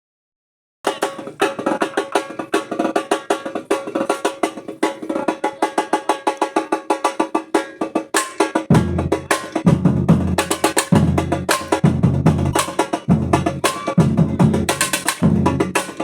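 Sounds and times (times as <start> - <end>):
high-pitched percussion strikes: 7.6 - 16.0
deep bass drums: 8.7 - 16.0.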